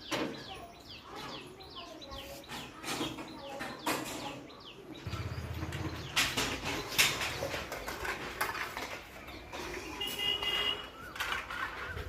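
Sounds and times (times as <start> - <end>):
birds chirping: 0.0 - 12.0
sharp clicks and rustles: 5.2 - 12.0.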